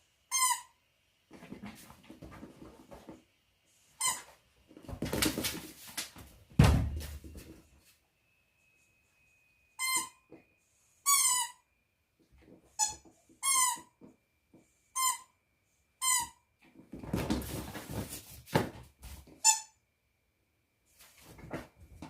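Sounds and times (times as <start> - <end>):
squeaky dog toy squeaking: 0.3 - 0.8, 9.8 - 10.2, 11.0 - 11.6, 12.7 - 13.9, 15.0 - 15.3, 16.0 - 16.4, 19.4 - 19.8
rustling and scuffling: 1.3 - 3.3, 4.1 - 8.0, 16.8 - 19.5, 20.9 - 22.0.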